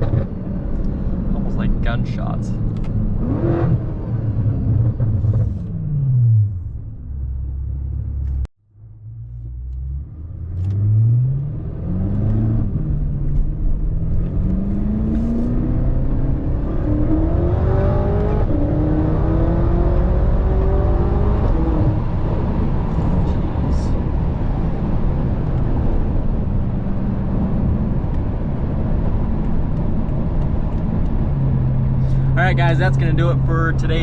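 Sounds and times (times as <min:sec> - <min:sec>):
car engine revving hard: 0:14.0 - 0:23.8.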